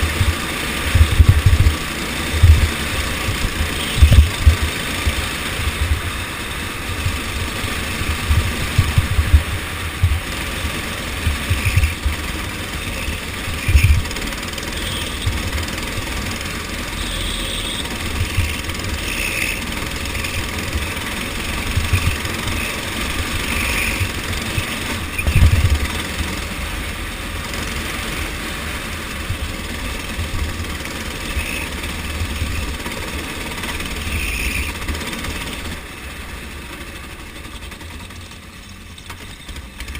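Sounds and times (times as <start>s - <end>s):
low thumps: 0.0s - 1.8s, 2.4s - 6.0s
go-kart engine drone: 0.0s - 39.9s.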